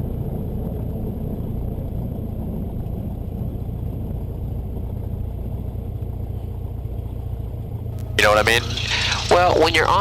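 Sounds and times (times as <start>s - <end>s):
light aircraft engine drone: 0.0s - 10.0s.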